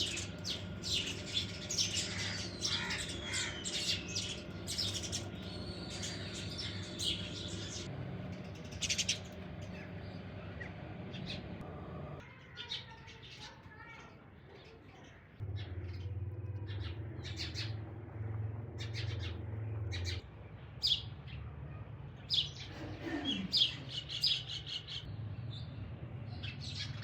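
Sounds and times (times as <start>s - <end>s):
low hum: 0.0s - 12.2s
birds chirping and squawking: 0.0s - 21.5s, 22.2s - 27.0s.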